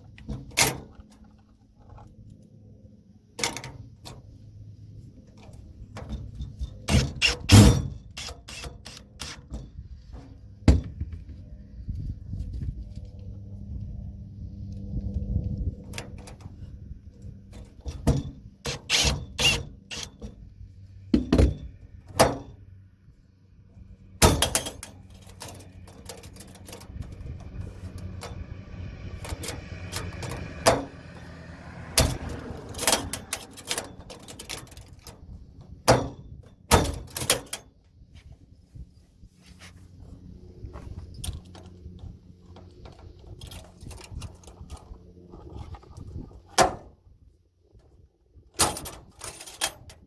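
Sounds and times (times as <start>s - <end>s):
metal hardware knocks and clunks: 3.4s - 4.3s, 5.3s - 11.4s, 17.5s - 20.4s, 21.1s - 22.6s, 24.2s - 31.0s, 31.9s - 37.8s, 48.6s - 50.0s.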